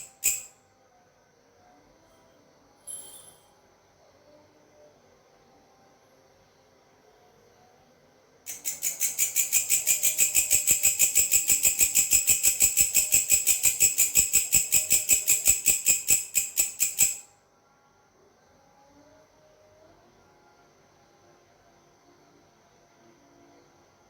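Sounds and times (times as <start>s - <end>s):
grasshopper chirping: 0.0s - 0.6s, 8.5s - 17.2s.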